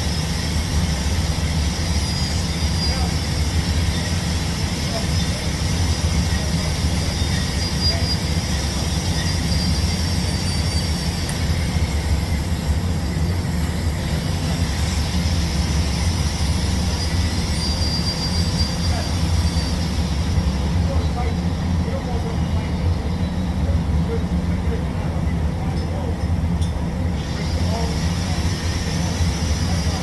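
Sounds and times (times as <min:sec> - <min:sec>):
welding arc hiss: 0:00.0 - 0:20.6, 0:27.1 - 0:30.0.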